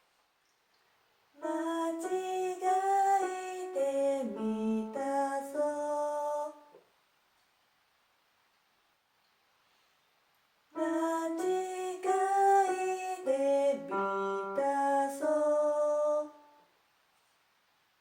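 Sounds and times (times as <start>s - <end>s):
person singing: 1.4s - 6.8s, 10.8s - 16.6s.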